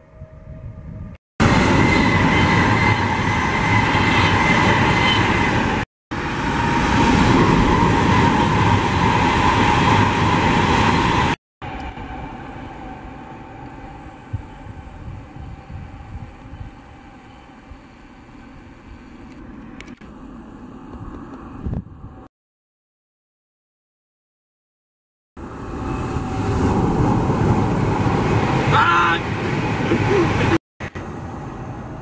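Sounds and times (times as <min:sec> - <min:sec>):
distant train rumble: 0:00.0 - 0:22.3, 0:25.4 - 0:32.0
train passing at speed: 0:00.0 - 0:22.3, 0:25.4 - 0:32.0
thin steady whine: 0:11.6 - 0:22.2.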